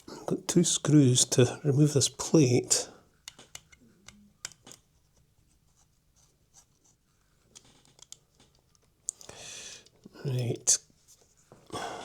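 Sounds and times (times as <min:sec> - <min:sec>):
small screwdriver clicks and scratches: 0:03.2 - 0:04.9, 0:07.5 - 0:09.2.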